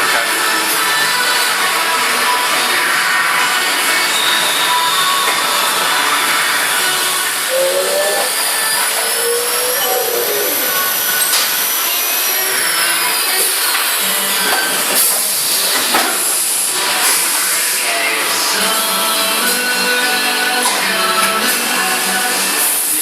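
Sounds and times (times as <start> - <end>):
cnc router cutting: 0.0 - 21.2.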